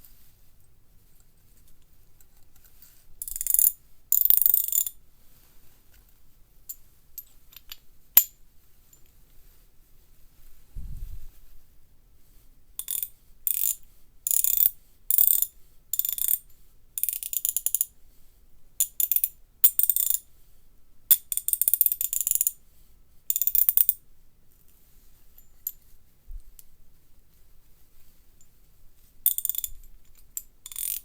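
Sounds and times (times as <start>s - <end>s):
ratchet handle clicking: 30.7s - 31.0s.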